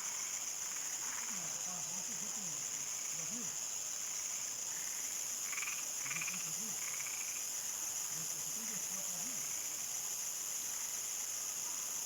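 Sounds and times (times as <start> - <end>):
frogs croaking: 4.6 - 7.6.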